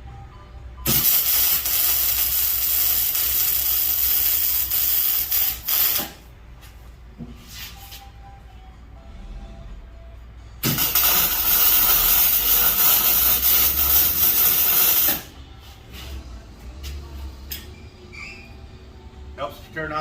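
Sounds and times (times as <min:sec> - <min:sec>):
welding arc hissing: 0:00.9 - 0:06.2, 0:10.6 - 0:15.3.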